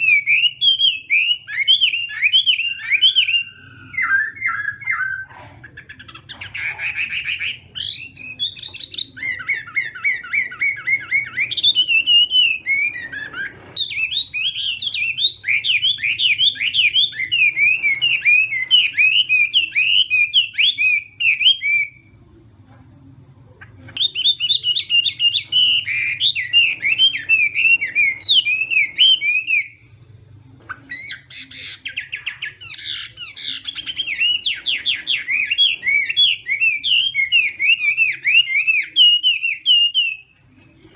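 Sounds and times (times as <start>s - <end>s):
bird singing whistled notes: 24.0s - 29.8s, 30.9s - 40.3s.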